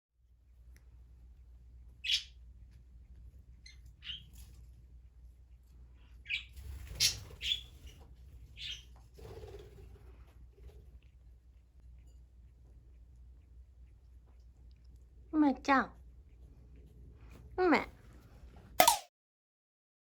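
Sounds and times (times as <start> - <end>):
parrot chirps and squawks: 2.0 - 2.4, 3.6 - 4.4, 6.2 - 7.9, 8.6 - 8.9.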